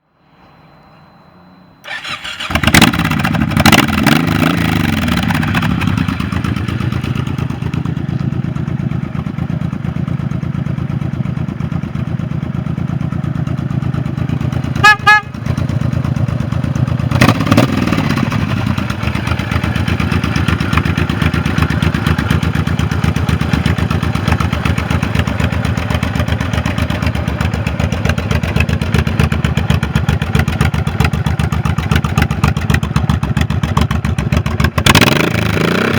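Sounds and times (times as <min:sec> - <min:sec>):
motorcycle engine revving and idling: 0:01.8 - 0:35.9
loud pitched tone: 0:14.8 - 0:15.3.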